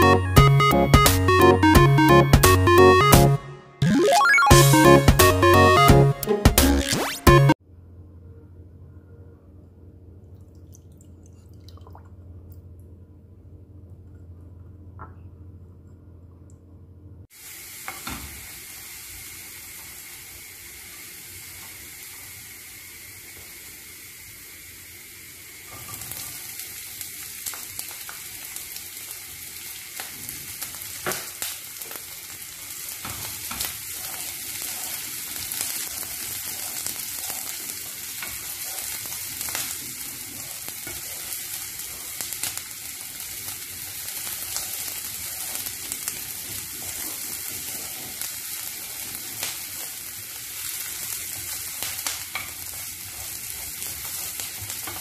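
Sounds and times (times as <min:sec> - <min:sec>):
onion sizzling in oil: 0:17.3 - 0:55.0.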